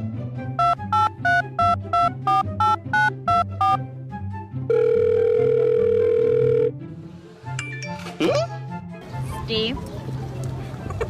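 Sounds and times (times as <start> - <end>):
background music: 0.0 - 11.0
loud steady phone tone: 0.6 - 3.8, 4.7 - 6.8
telephone dialing beeps: 0.6 - 3.8.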